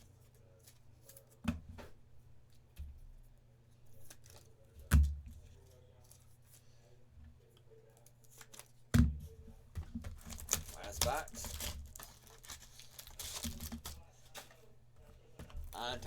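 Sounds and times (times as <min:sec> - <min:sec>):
cards rustling and clicking: 0:03.9 - 0:04.6, 0:08.0 - 0:08.8, 0:10.0 - 0:14.7.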